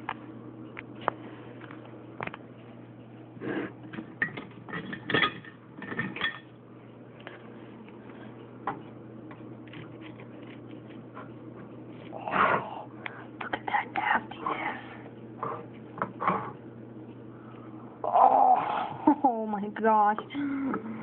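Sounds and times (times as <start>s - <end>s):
dish and utensils clinking: 4.2s - 6.5s.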